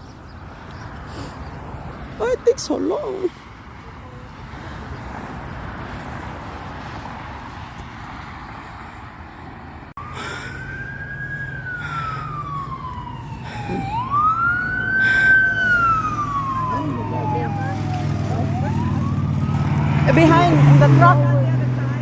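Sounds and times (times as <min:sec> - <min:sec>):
rushing outdoor noise: 0:00.0 - 0:22.0
low engine hum: 0:00.1 - 0:22.0
emergency siren wailing: 0:10.0 - 0:22.0.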